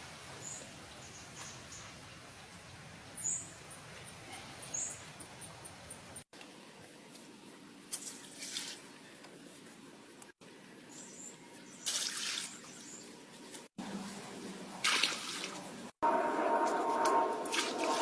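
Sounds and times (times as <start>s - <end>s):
water splashing: 14.8s - 15.8s.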